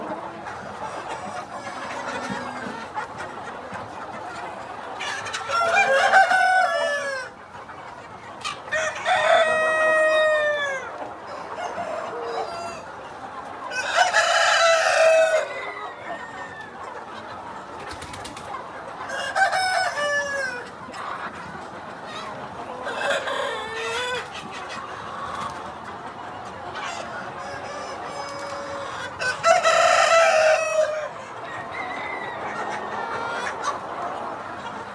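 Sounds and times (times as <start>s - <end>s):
chickens clucking: 0.0s - 34.9s
rooster crowing: 31.7s - 32.8s.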